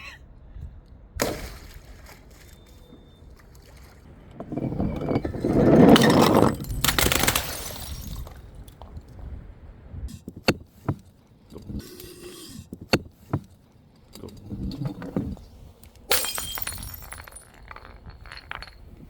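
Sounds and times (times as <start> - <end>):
glass breaking: 5.9 - 8.4, 16.1 - 18.9
glass pieces clinking: 16.1 - 19.0.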